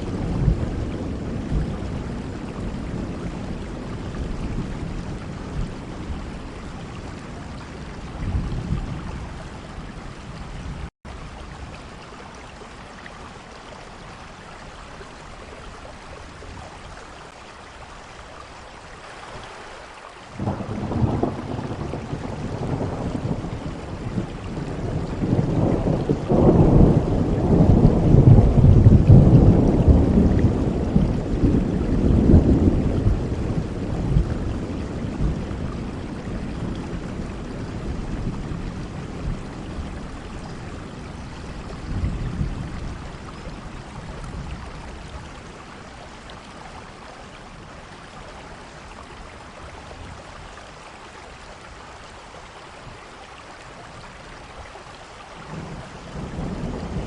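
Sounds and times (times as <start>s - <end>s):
thunder rolling: 0.0s - 9.4s, 20.4s - 44.8s, 55.5s - 57.0s
steady rain: 0.0s - 57.0s.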